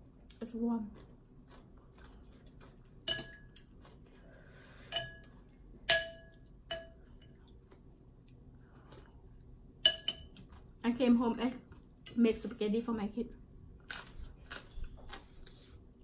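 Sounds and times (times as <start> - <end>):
utensils clinking on soup bowl: 3.0 - 3.6.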